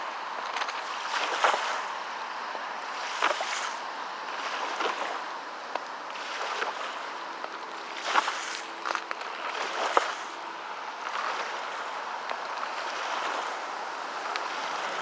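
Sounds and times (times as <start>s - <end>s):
waves splashing against rock: 0.5s - 2.0s, 3.0s - 5.3s, 6.1s - 7.2s, 7.8s - 10.4s.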